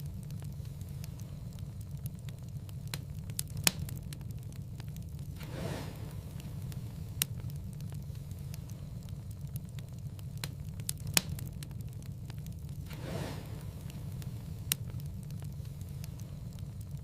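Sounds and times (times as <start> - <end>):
wood fire crackling: 0.0 - 17.0
soft whoosh: 5.4 - 7.2, 12.8 - 14.8.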